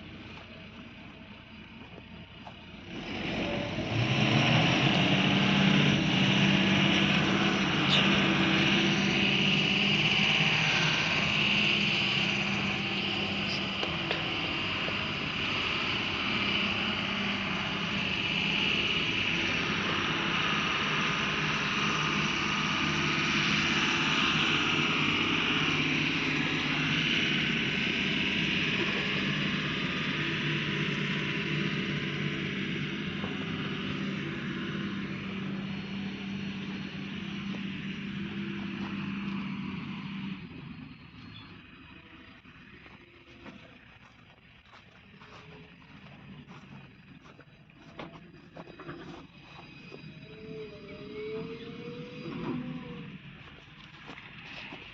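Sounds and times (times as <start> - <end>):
diesel truck engine running: 0.0 - 54.9.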